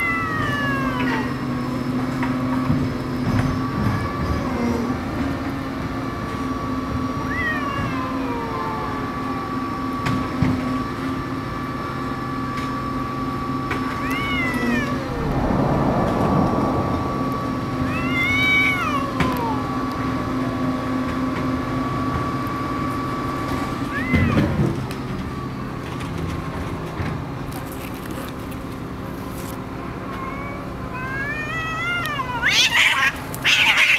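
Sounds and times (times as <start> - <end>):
cats yowling: 0.0 - 1.6, 3.6 - 5.0, 7.0 - 9.7, 13.9 - 15.2, 17.9 - 20.0, 23.8 - 24.8, 30.0 - 33.9.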